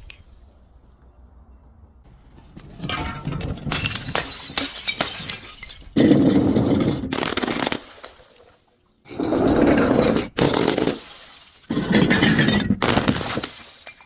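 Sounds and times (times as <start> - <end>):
glass crunching and shattering: 2.8 - 8.8, 10.3 - 14.0.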